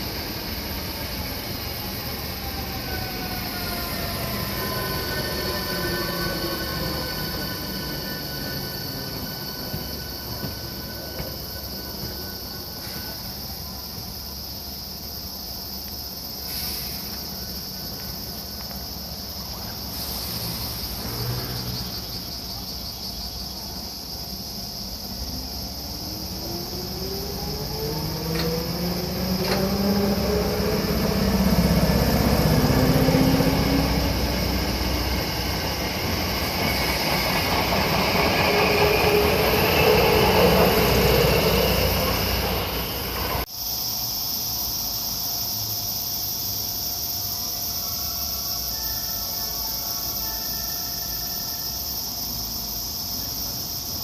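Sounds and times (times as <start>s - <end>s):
train motors whining: 0.0s - 14.4s, 25.1s - 43.5s
insects buzzing shrilly: 0.0s - 54.0s.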